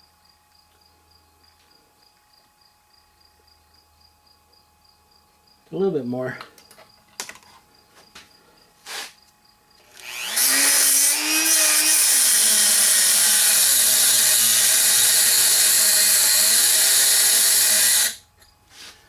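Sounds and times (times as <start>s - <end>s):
power tool motor whining: 9.8s - 18.2s.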